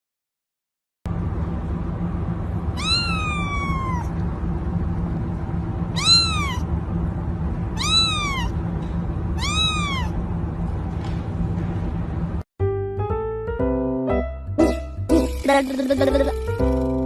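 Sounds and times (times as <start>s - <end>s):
steady low hum: 1.1s - 12.5s
cat meowing: 2.7s - 4.2s, 5.9s - 6.7s, 7.8s - 8.6s, 9.4s - 10.2s.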